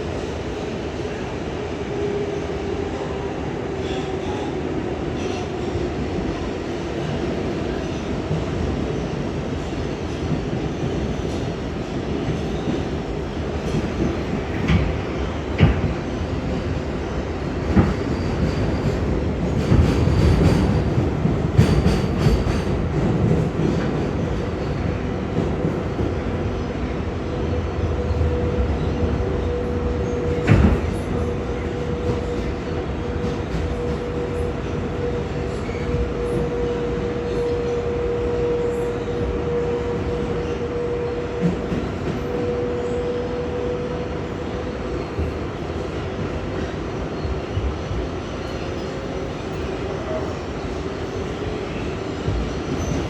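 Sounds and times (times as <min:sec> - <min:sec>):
train wheels clattering over rails: 0:17.5 - 0:26.3, 0:29.5 - 0:37.1.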